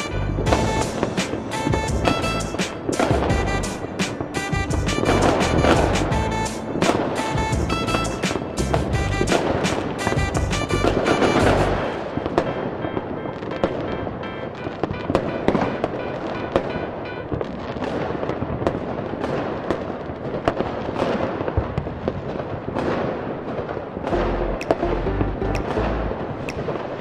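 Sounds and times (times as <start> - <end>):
music playing: 0.0 - 17.3, 24.1 - 26.3
fireworks bangs and crackles: 0.0 - 24.8.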